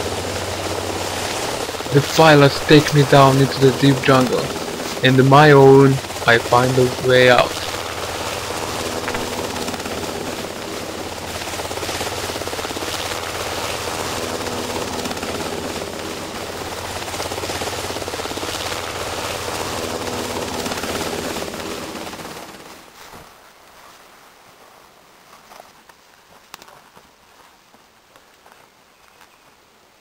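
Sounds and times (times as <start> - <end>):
helicopter rotor chopping: 0.0 - 22.9.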